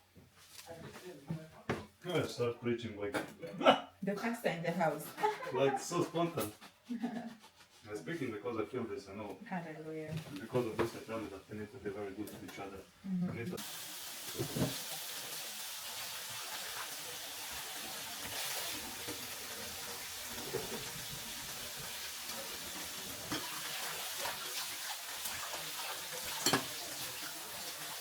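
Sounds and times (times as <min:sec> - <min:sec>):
patties sizzling in a pan: 0:13.6 - 0:28.0.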